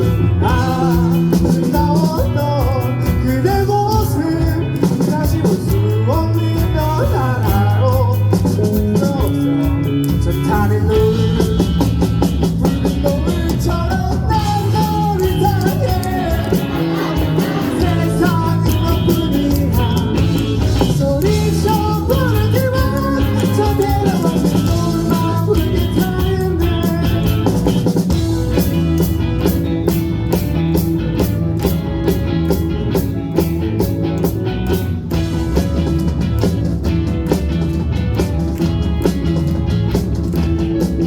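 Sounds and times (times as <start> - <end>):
person singing: 0.0 - 28.0
rock band playing live: 0.0 - 41.0.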